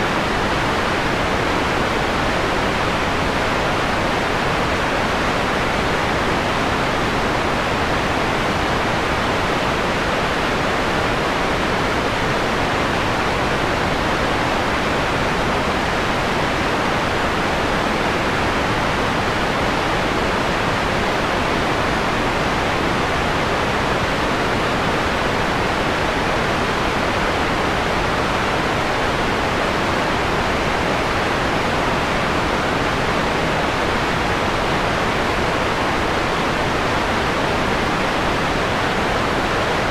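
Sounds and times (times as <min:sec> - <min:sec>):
filtered white noise hiss: 0:00.0 - 0:39.9.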